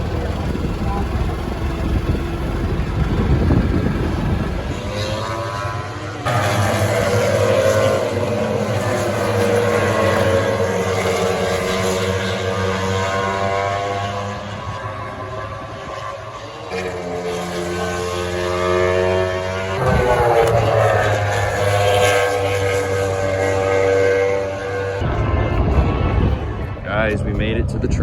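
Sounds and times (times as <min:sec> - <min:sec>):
low vehicle rumble: 0:00.0 - 0:07.3, 0:19.6 - 0:23.4, 0:24.5 - 0:28.0
distant racing motorcycles: 0:00.0 - 0:28.0.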